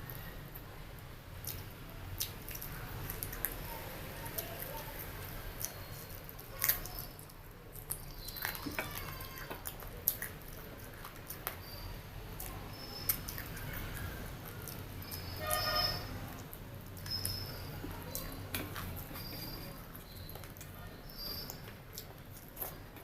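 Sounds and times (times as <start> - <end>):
wet chewing smacks and clicks: 1.4 - 23.0.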